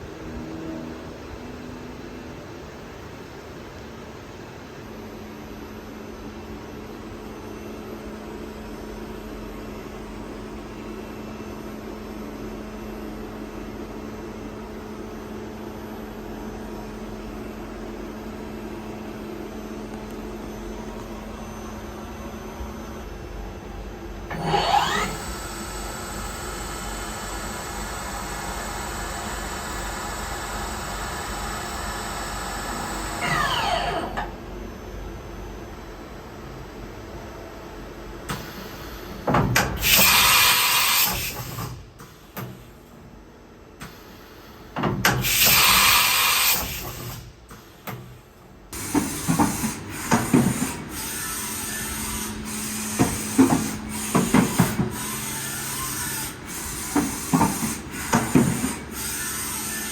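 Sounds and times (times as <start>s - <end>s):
spindle whining: 24.3s - 25.4s, 33.0s - 34.3s
machine humming: 48.8s - 59.9s.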